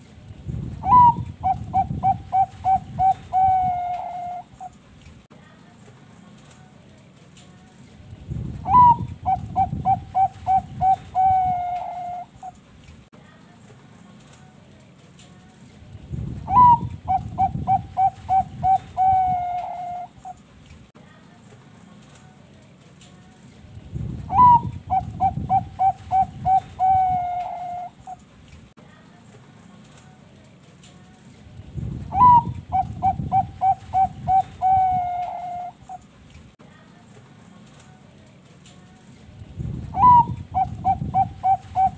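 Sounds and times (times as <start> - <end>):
dove cooing: 0.8 - 4.8, 8.7 - 12.6, 16.5 - 20.4, 24.3 - 28.2, 32.1 - 36.0, 40.0 - 41.9.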